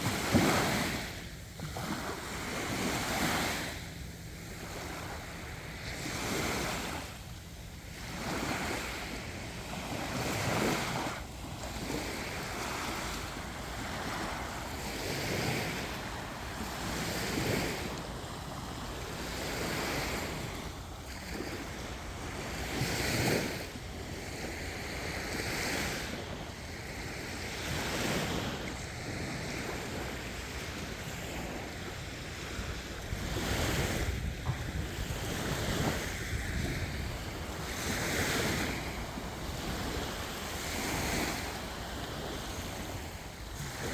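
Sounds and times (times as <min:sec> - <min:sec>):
sea waves breaking on beach: 0:00.0 - 0:43.9
wind buffeting microphone: 0:32.4 - 0:43.9.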